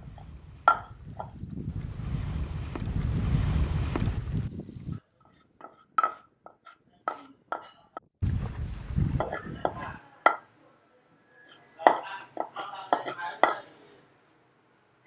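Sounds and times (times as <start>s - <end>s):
wind gust on microphone: 0.0s - 5.0s, 8.2s - 10.0s.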